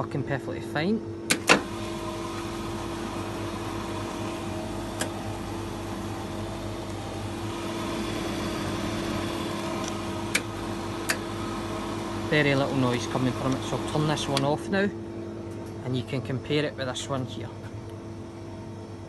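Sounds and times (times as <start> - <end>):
slush machine motor hum: 1.6 - 15.5.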